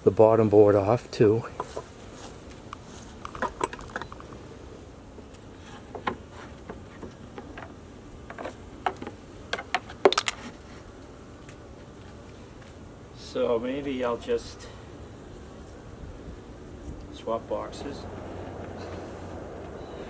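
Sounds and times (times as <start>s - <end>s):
honey bees buzzing: 0.0s - 20.0s.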